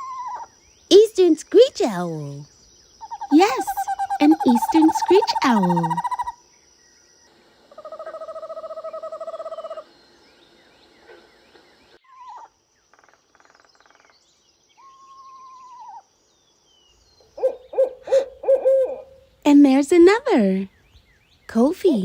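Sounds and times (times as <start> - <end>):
owl trilling call: 0.0 - 0.6, 3.0 - 6.4, 7.7 - 9.9, 12.0 - 14.1, 14.8 - 16.1, 17.2 - 19.4
faint small bird chirps: 2.2 - 18.0.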